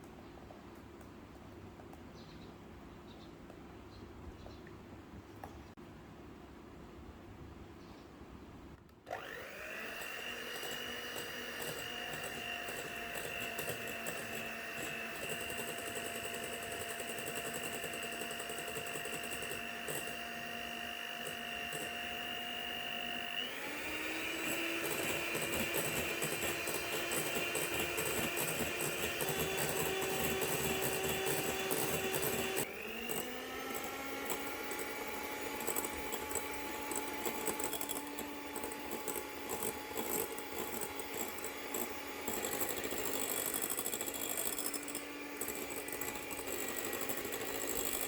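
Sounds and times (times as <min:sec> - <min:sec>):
electric mixer whipping cream: 0:09.1 - 0:48.0.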